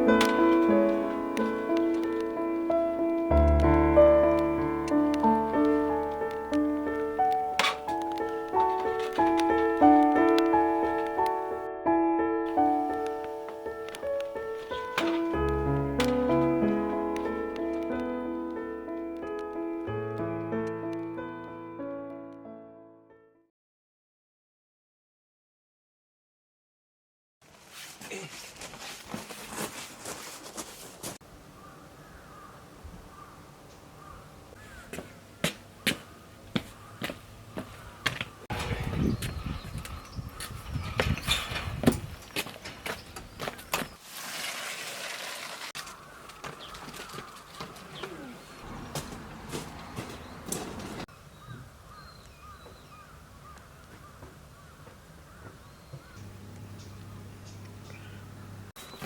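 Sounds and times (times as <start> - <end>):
birds calling: 31.3 - 42.0, 45.8 - 59.0
crows cawing: 31.5 - 38.4, 45.8 - 48.6, 51.3 - 56.2
knocks and rustling: 45.7 - 51.1.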